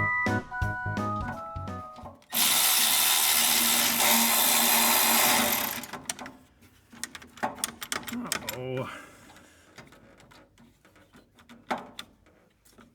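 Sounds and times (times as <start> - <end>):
background music: 0.0 - 2.7
power tool whirring: 2.3 - 6.1.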